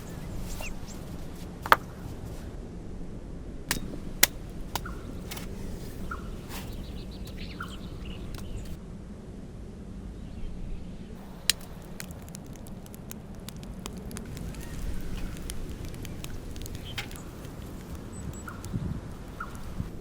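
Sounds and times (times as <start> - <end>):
campfire crackling: 0.0 - 2.6, 3.7 - 8.8, 11.2 - 20.0.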